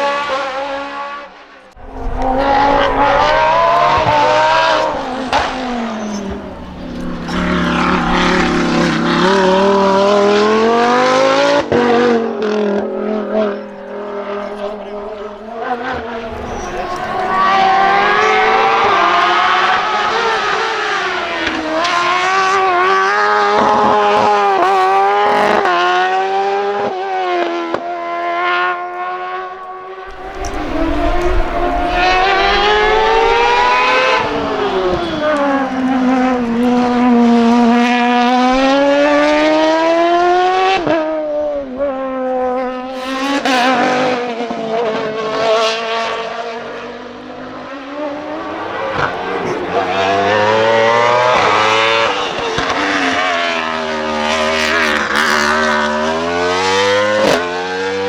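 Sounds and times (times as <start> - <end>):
race car engine revving: 1.8 - 26.1, 30.1 - 42.0, 47.9 - 58.0.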